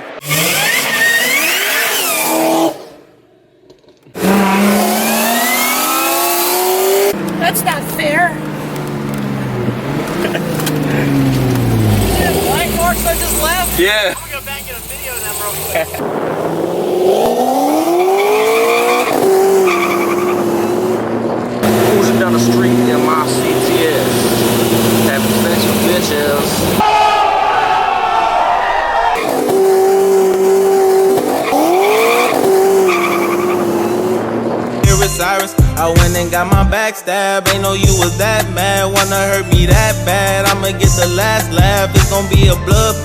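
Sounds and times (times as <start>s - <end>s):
car engine accelerating hard: 0.0s - 3.1s, 4.1s - 26.8s, 29.2s - 35.4s
tyres squealing: 7.2s - 16.0s, 17.9s - 26.8s, 29.2s - 34.2s.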